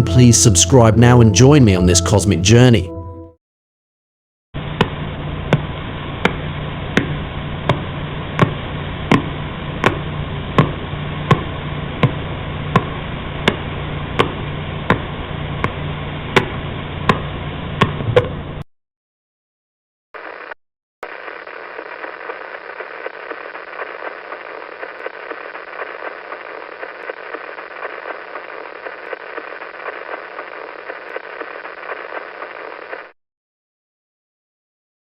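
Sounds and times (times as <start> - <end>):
crackling static hiss: 4.6 - 18.6, 20.2 - 33.2.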